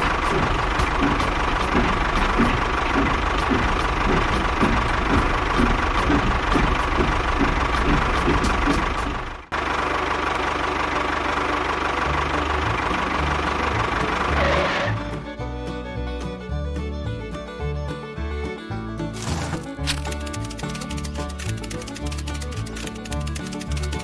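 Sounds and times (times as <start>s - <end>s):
regular ticking: 0.0s - 9.5s, 19.9s - 24.0s
small electric motor running: 19.9s - 24.0s.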